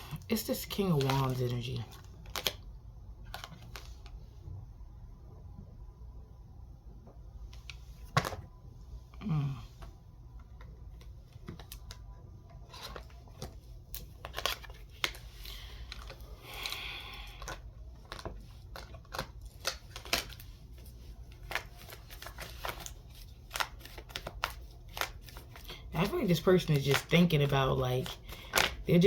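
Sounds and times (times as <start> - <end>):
cards rustling: 0.0 - 2.6, 3.2 - 4.2, 10.4 - 29.0
low electrical hum: 0.0 - 29.0
cards clicking and snapping: 2.1 - 2.6, 12.8 - 20.4, 21.4 - 25.8, 28.0 - 28.9.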